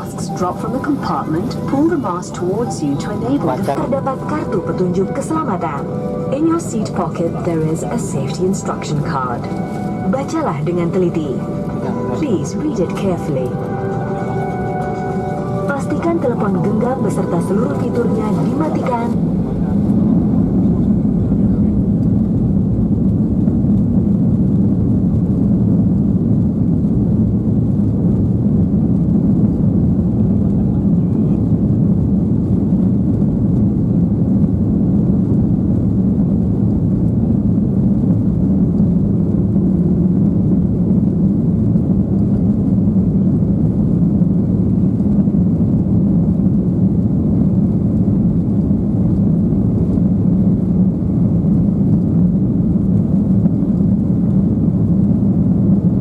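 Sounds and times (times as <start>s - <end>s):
airliner cabin hum: 0.0s - 56.0s.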